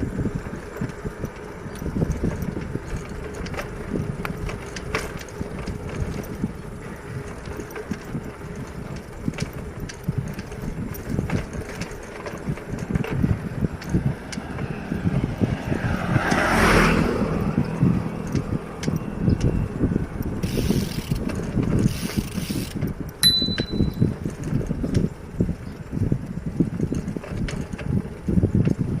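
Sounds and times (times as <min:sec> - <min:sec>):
bicycle rolling rumble with rattles: 0:00.0 - 0:29.0
passing vehicle: 0:10.1 - 0:22.3.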